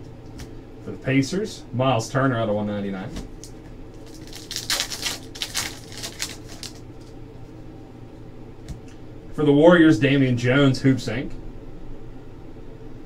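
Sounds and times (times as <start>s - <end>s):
cards flipped and shuffled: 3.4s - 7.1s.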